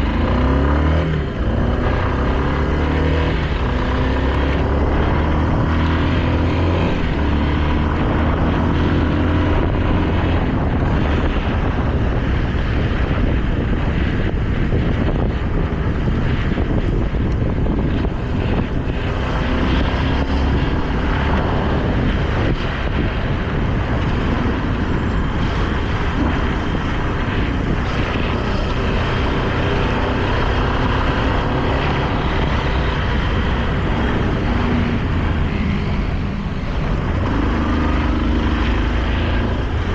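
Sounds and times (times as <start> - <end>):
loud rushing noise: 0.0 - 39.9
motorcycle engine revving: 0.0 - 39.9.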